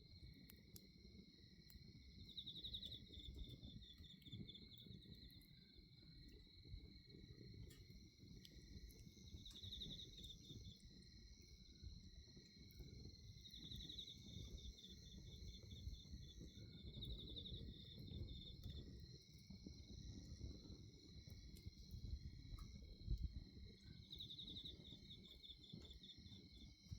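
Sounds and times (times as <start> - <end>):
crickets chirring: 0.0 - 26.9
pulsing insect trill: 1.8 - 26.9.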